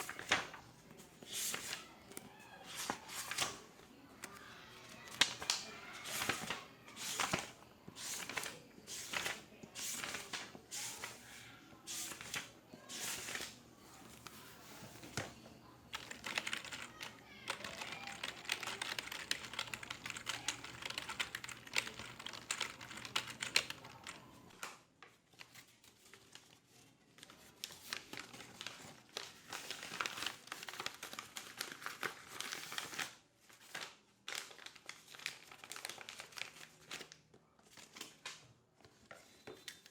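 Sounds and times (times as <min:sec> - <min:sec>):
loud keyboard clicks: 0:15.9 - 0:24.0
computer keyboard typing: 0:15.9 - 0:24.4.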